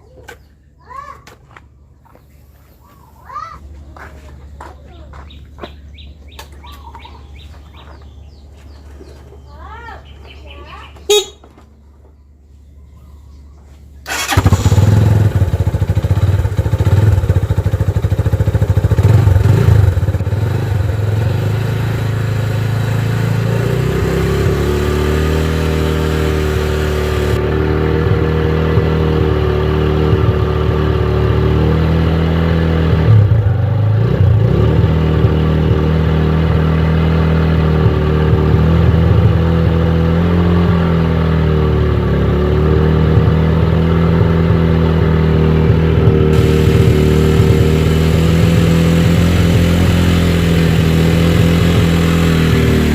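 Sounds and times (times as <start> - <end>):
motorcycle engine revving and idling: 14.0 - 52.9.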